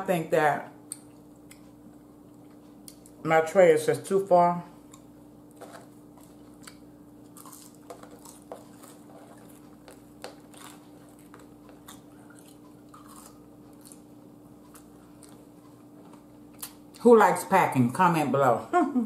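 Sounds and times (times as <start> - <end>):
faint steady hum: 0.0 - 19.0
person chewing crunchy fries: 0.8 - 3.2, 4.8 - 17.0.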